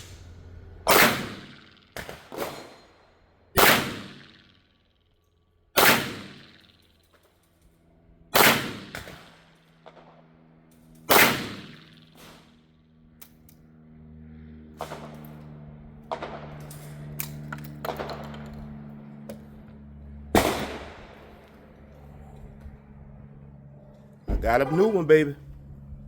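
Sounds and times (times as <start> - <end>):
shotgun shots echoing: 0.9 - 2.7, 3.6 - 4.5, 5.8 - 6.8, 8.4 - 10.1, 11.1 - 12.4, 16.1 - 16.6, 20.3 - 21.4.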